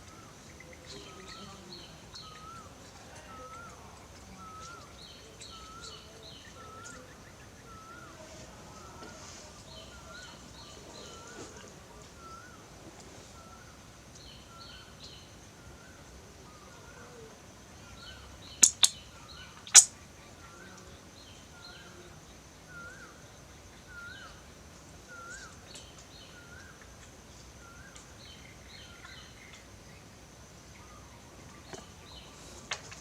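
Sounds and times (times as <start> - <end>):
bird chirping: 0.0 - 33.0
higher chirps: 18.5 - 19.0
sharp clicks: 18.6 - 19.0, 19.7 - 19.9.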